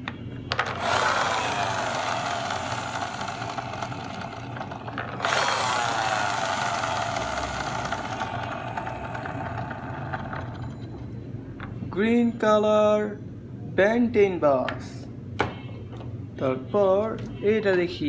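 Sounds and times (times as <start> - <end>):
toy motor whirring: 0.6 - 10.8.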